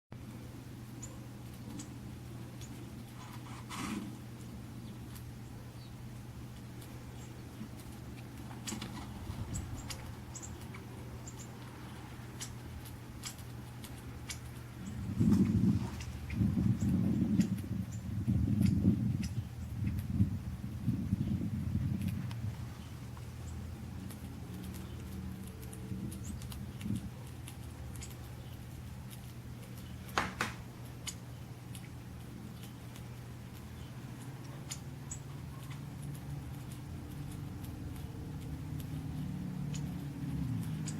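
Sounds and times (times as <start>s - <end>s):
small birds chirping: 0.2s - 40.9s
steady low hum: 0.2s - 40.9s
pecking clicks: 1.0s - 3.4s, 4.3s - 5.5s, 6.1s - 20.7s, 21.3s - 22.5s, 23.1s - 40.9s
high bird chirps: 8.6s - 12.6s.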